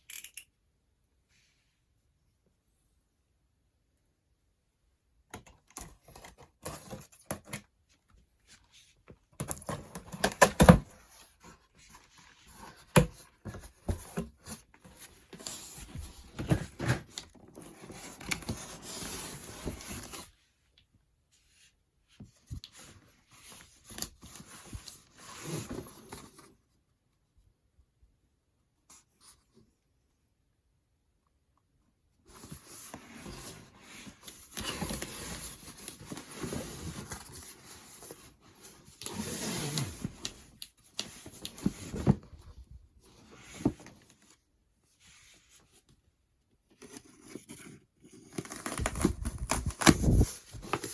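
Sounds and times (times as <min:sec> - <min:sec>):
packaging rustling and tearing: 0:48.2 - 0:50.9.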